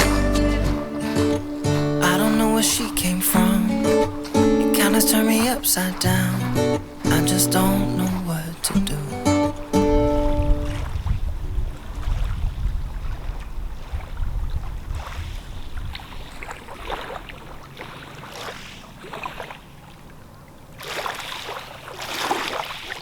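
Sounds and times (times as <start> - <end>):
rushing wind gusts: 9.7 - 16.3
wind rumbling on microphone: 9.7 - 17.7.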